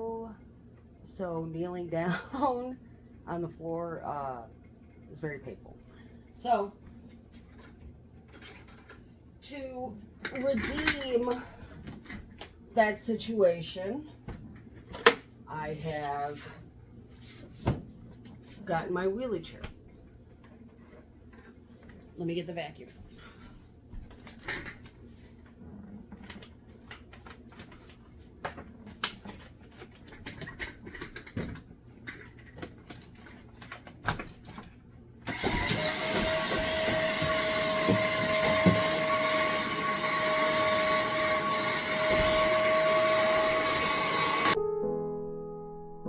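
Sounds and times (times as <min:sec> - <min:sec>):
vacuum cleaner running: 0:35.2 - 0:44.6.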